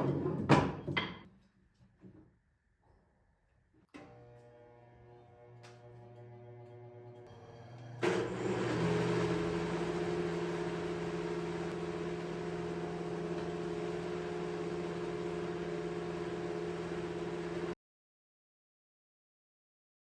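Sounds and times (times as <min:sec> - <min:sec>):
electric woodworking machine whirring: 0:04.0 - 0:17.8.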